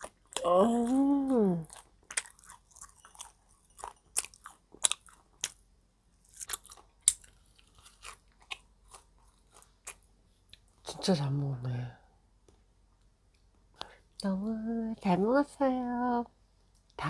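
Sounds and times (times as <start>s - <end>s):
person chewing food: 0.0s - 10.8s.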